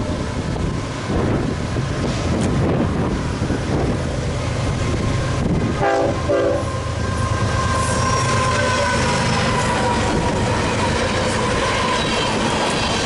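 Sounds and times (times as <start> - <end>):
diesel locomotives rumbling: 0.0 - 13.0
train horn blasts: 5.7 - 12.4
high wheel squeal whine: 6.6 - 13.0.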